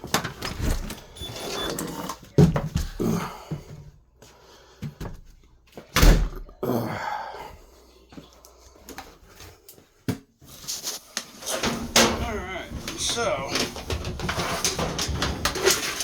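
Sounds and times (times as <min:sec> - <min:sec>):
quiet shuffling: 0:08.0 - 0:16.0.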